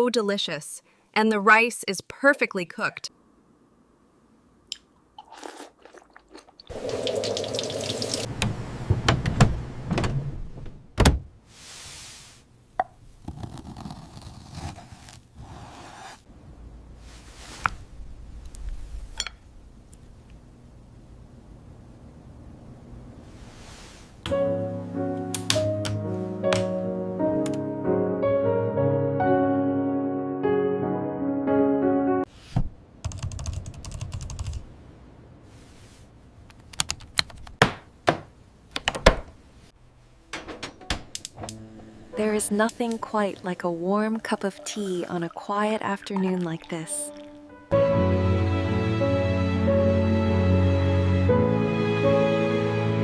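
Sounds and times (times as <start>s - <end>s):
soft piano music: 24.2s - 32.3s, 40.1s - 43.9s, 47.0s - 53.0s
typing on laptop keyboard: 33.0s - 34.6s
kitchen knocks and clinks: 40.3s - 41.1s.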